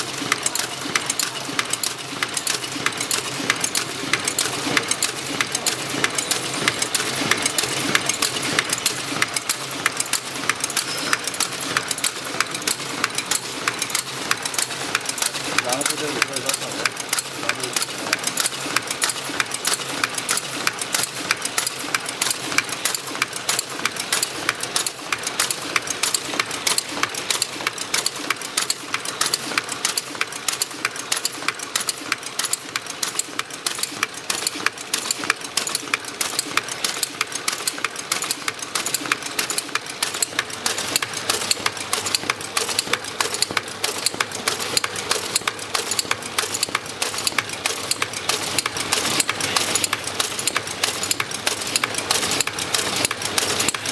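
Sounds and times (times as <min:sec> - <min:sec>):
packaging machine clattering: 0:00.0 - 0:53.9.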